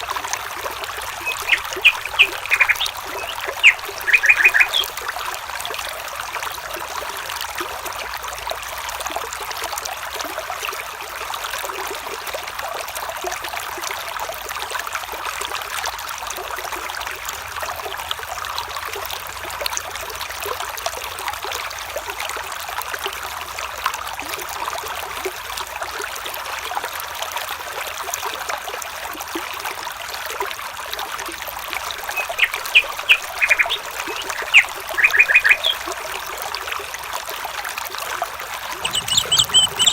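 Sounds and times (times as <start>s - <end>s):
water trickling: 0.0s - 39.9s
short bird calls: 0.8s - 5.0s, 32.0s - 36.1s, 38.8s - 39.9s.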